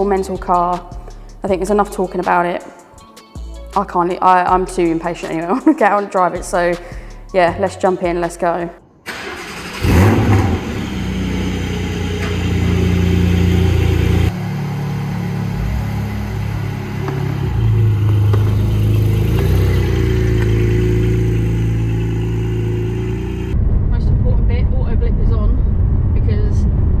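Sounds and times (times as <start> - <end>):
car engine starting and idling: 9.0 - 23.6
car engine pulling away: 9.1 - 23.6.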